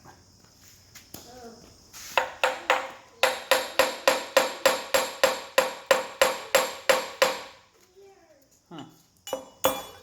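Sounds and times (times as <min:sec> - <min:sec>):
hammer striking metal cover: 0:02.2 - 0:07.6, 0:09.3 - 0:10.0.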